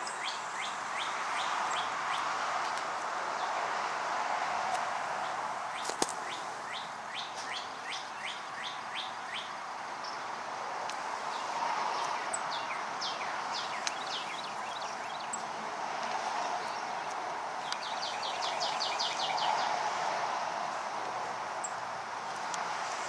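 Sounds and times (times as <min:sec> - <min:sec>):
birds chirping: 0:00.0 - 0:22.9
steady background hiss: 0:00.0 - 0:23.0.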